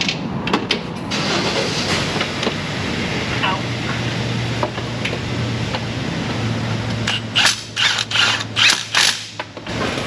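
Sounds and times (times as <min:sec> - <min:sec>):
hand ratchet clicking: 0:07.1 - 0:09.3.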